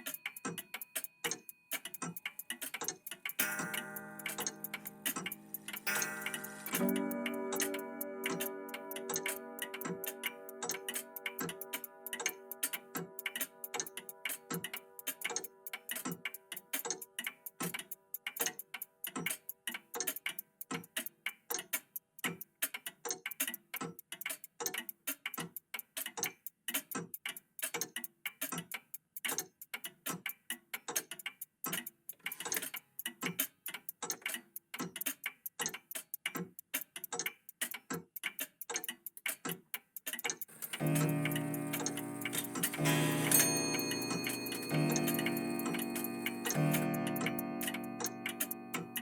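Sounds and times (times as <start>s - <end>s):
mechanical clocks ticking: 0.0s - 49.0s
clock chime ringing: 3.4s - 12.7s, 40.6s - 49.0s.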